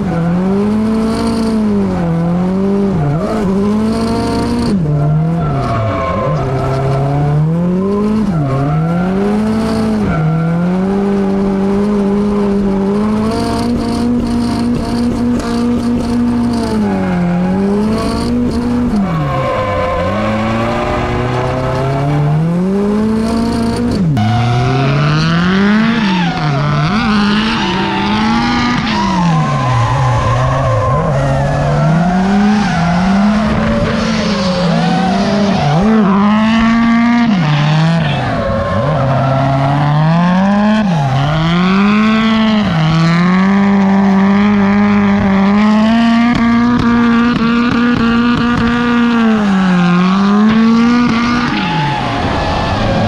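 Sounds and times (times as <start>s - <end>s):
car engine revving hard: 0.0s - 53.0s
tyres squealing: 16.4s - 22.5s.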